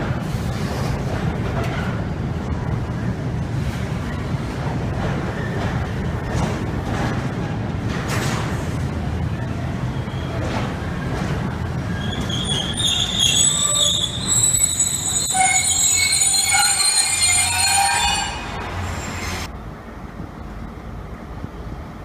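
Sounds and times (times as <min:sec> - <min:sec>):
moving train rumble: 0:00.0 - 0:22.0
train wheels squealing on rails: 0:09.4 - 0:19.5.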